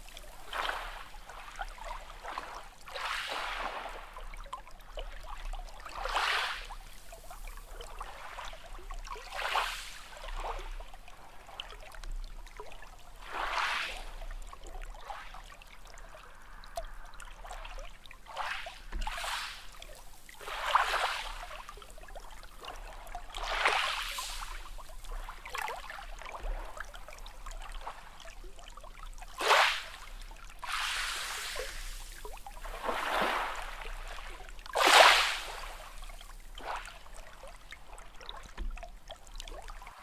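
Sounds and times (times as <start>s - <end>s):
steady watery wash: 0.0s - 40.0s
waves splashing: 18.3s - 21.8s, 23.4s - 25.6s, 30.6s - 36.0s.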